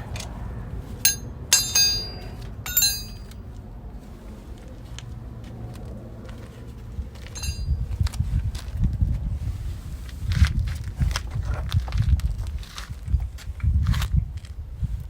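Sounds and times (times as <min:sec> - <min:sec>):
low background hum: 0:00.0 - 0:04.0, 0:07.2 - 0:08.1
metal objects clinking: 0:01.1 - 0:03.3, 0:07.3 - 0:07.7.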